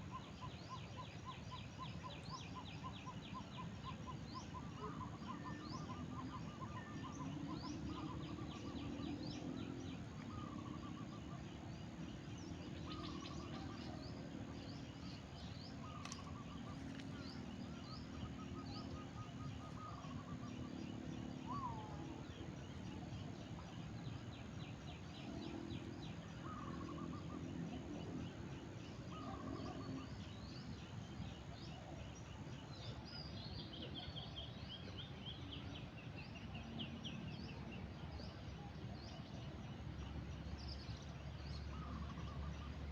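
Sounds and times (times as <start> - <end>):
low background hum: 0.0 - 42.9
birds chirping and calling: 12.4 - 20.8.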